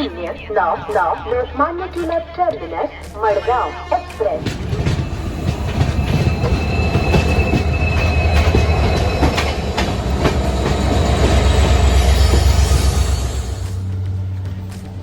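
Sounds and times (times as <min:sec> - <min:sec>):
train rumble on rails: 0:00.0 - 0:15.0
high wheel squeal: 0:04.7 - 0:09.9.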